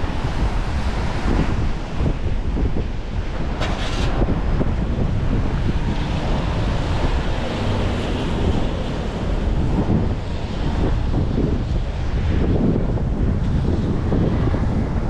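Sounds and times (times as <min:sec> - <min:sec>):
wind buffeting microphone: 0:00.0 - 0:15.0
rain on street: 0:03.4 - 0:10.9.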